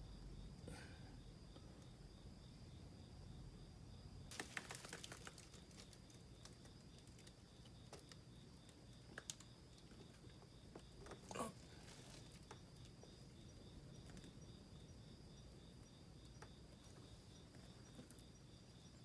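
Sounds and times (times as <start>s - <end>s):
small clicks and ticks: 4.3s - 11.2s.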